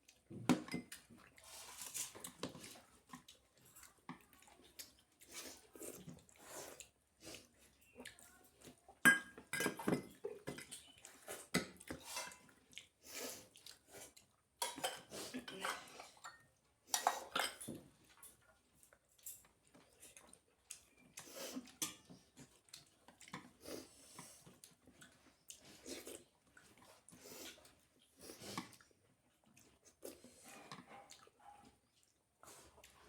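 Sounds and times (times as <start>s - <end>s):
person chewing: 10.8s - 14.4s, 18.8s - 31.4s, 32.0s - 33.0s.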